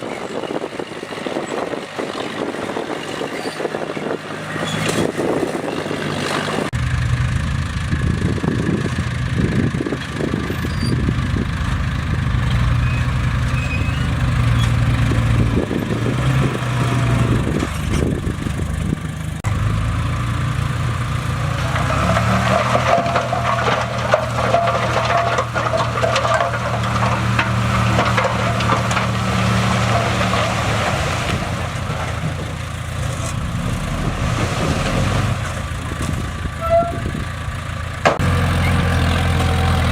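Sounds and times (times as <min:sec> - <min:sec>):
bulldozer diesel engine: 0:00.0 - 0:39.9
scratchy clatter: 0:21.6 - 0:32.4.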